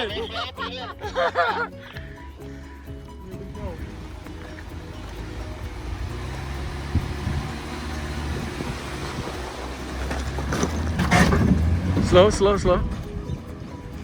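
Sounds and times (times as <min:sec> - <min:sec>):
off-road vehicle engine running: 0:00.0 - 0:14.0
scraping noise: 0:09.1 - 0:13.2.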